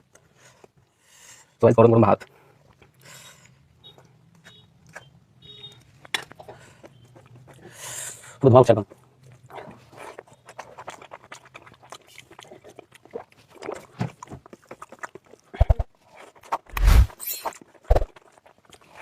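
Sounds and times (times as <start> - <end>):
person chewing with wet mouth clicks: 2.6 - 7.9, 8.9 - 16.7.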